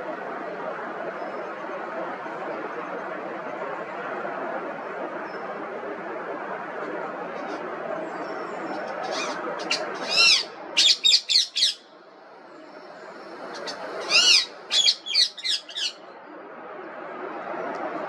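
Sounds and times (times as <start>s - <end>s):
steady background noise: 0.0s - 18.0s
parrot screeching: 9.0s - 11.8s, 13.5s - 16.0s.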